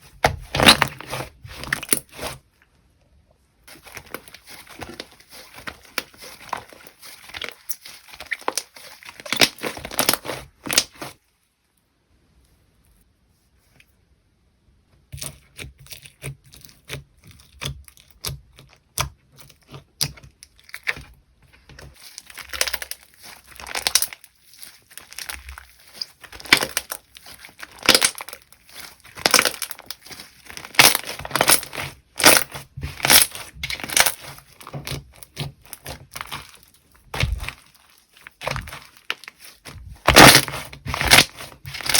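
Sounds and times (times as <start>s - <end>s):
slime squished by hand crackling: 3.7s - 11.2s, 22.0s - 41.9s.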